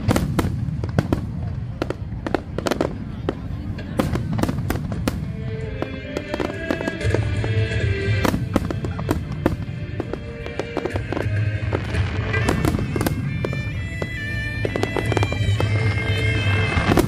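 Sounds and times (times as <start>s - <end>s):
fireworks bangs and crackles: 0.0s - 17.0s
music playing: 3.5s - 17.0s.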